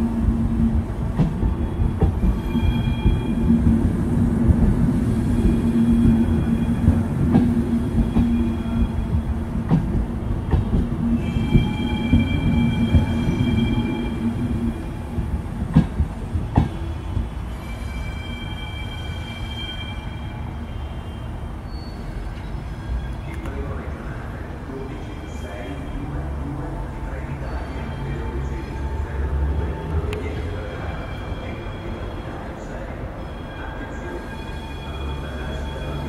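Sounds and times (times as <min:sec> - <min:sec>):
high wheel squeals: 0:01.5 - 0:03.6, 0:11.2 - 0:15.1, 0:16.7 - 0:23.4, 0:27.1 - 0:36.0.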